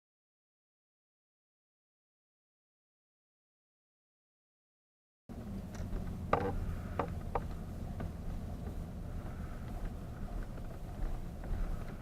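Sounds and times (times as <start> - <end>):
motor droning: 5.3 - 12.0.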